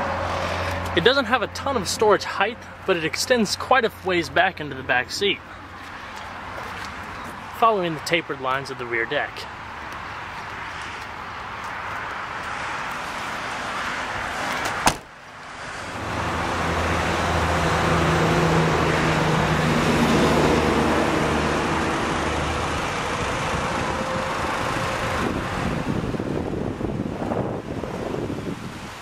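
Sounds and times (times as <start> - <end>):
passing vehicle engine hum: 0.0 - 3.0, 15.4 - 28.3
sharp knock: 14.8 - 15.1.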